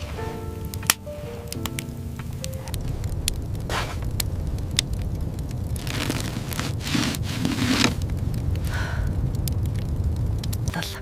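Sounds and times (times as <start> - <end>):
fire crackling and popping: 0.0 - 11.0
wind rumbling and gusting: 0.0 - 11.0.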